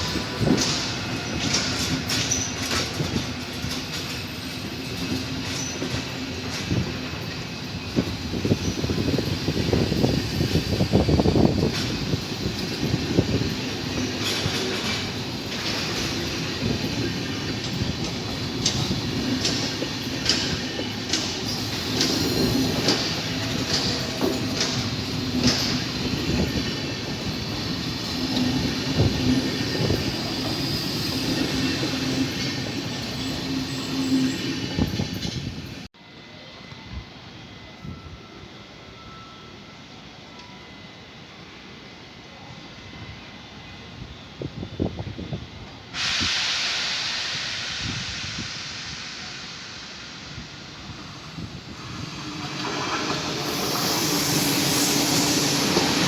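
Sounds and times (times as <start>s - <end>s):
train wheels clicking over rail joints: 0.0s - 35.7s, 47.4s - 56.0s
steady train hum: 0.0s - 56.0s
high wheel squeals: 50.4s - 56.0s.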